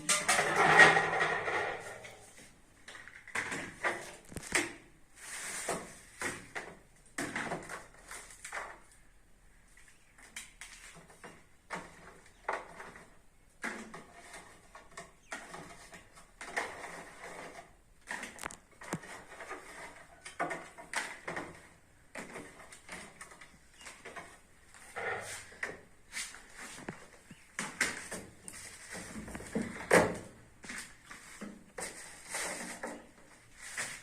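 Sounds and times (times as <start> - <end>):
household items knocking and clattering: 0.0 - 2.2, 2.8 - 4.9.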